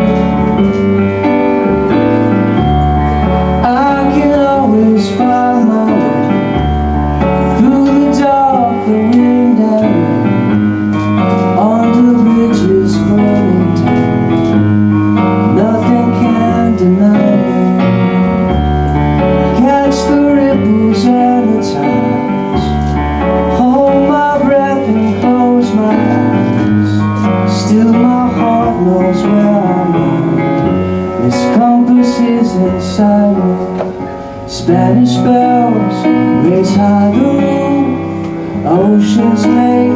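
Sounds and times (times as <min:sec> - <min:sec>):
bass: 0:00.0 - 0:39.9
electric piano: 0:00.0 - 0:39.9
man singing: 0:03.5 - 0:14.7, 0:15.4 - 0:18.4, 0:19.4 - 0:39.9.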